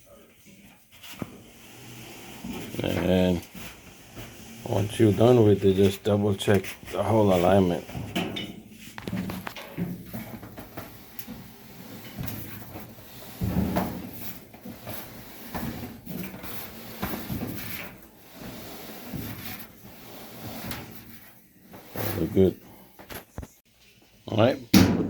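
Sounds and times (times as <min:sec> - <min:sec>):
dryer drum rubbing strokes: 0:00.8 - 0:22.8.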